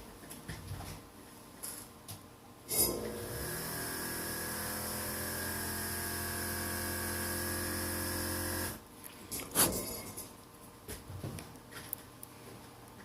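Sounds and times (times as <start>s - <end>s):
small electric motor humming: 2.9s - 8.8s.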